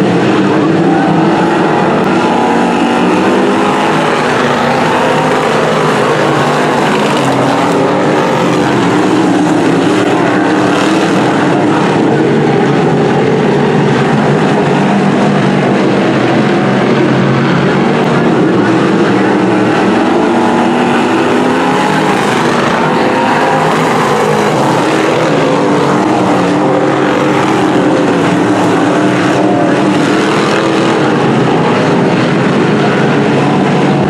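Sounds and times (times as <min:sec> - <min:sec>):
race car engines droning: 0:00.0 - 0:34.0.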